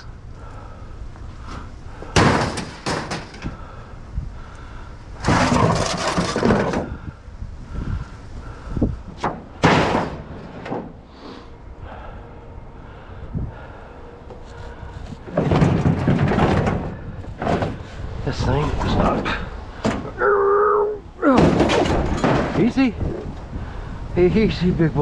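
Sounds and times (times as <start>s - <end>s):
scrap metal bangs and clanks: 2.0s - 3.6s, 5.2s - 7.0s, 9.2s - 11.1s, 15.1s - 20.2s, 21.3s - 23.4s.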